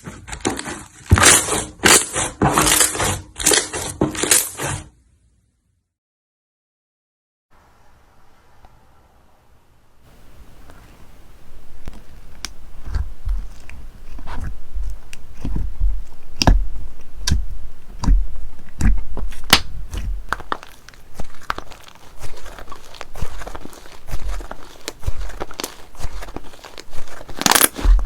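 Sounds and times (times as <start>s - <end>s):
slime squelching thuds: 10.6s - 28.0s.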